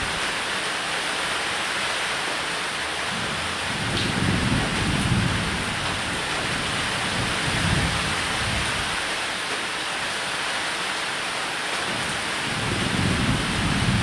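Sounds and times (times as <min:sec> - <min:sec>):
thunder rolling: 0:00.0 - 0:00.4, 0:03.2 - 0:06.2
rain falling on a roof: 0:00.0 - 0:14.0.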